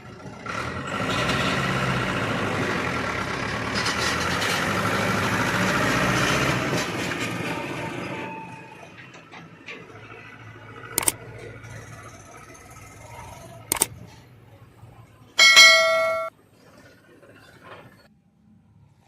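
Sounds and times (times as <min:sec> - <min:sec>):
heavy machinery running: 0:00.0 - 0:13.9
loud ringing bell-like tone: 0:15.4 - 0:16.3
sharp metallic clanks: 0:15.4 - 0:16.3.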